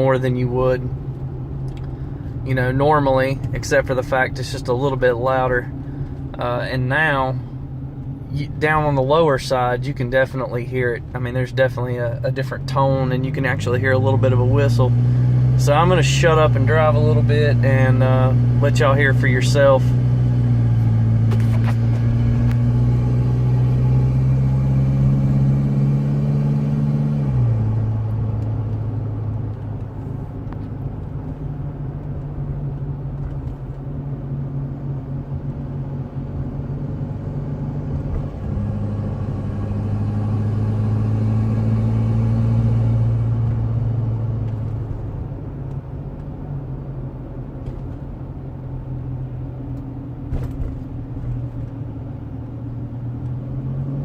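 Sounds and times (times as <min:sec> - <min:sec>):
diesel engine drone accelerating: 0:00.0 - 0:54.0.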